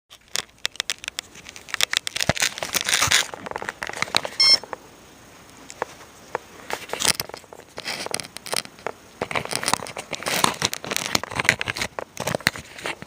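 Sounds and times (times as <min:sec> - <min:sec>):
clicks and rustling of handling: 0:00.1 - 0:04.8, 0:05.6 - 0:13.0
short electronic beep: 0:04.4 - 0:04.6.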